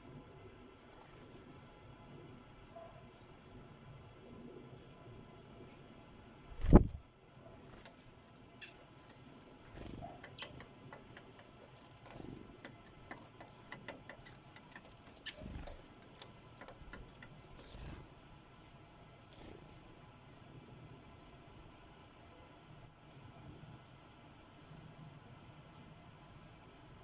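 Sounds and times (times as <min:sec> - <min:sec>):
beaks pecking seed: 0:07.6 - 0:18.6.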